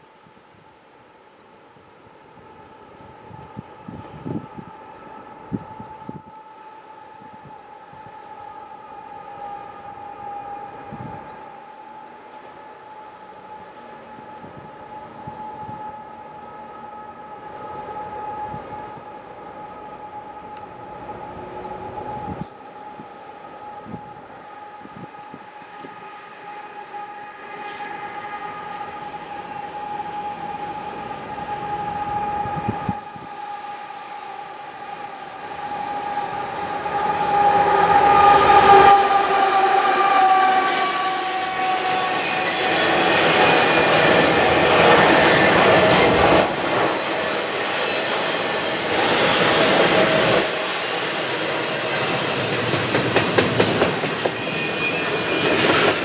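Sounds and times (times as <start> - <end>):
locomotive engine whine: 2.2 - 56.0
train wheels on rail: 23.9 - 56.0
wheel squeal: 47.7 - 56.0.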